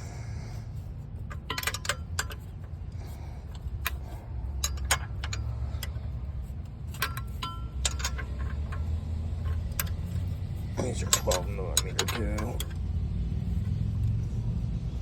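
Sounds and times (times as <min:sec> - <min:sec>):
steady low hum: 0:00.0 - 0:15.0
metal hand tools clicking: 0:03.5 - 0:06.0, 0:06.9 - 0:13.0.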